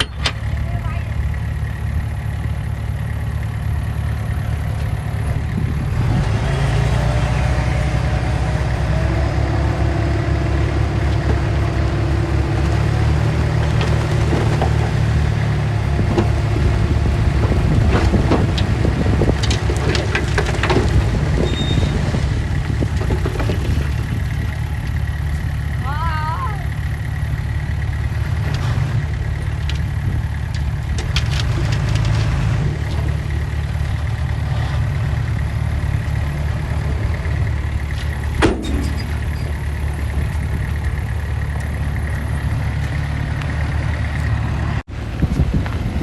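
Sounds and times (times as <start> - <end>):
heavy machine diesel engine: 0.0 - 46.0
sharp knocks and clanks: 38.0 - 40.5.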